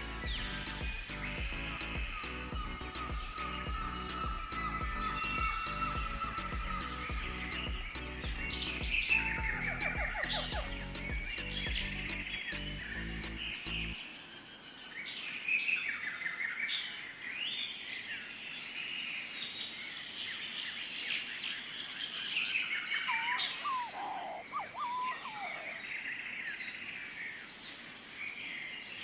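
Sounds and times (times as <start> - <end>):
birds chirping and calling: 0.0 - 14.1, 21.0 - 28.7
lower whistled bird calls: 0.0 - 14.2, 19.4 - 27.4
steady high-pitched whine: 0.0 - 15.0.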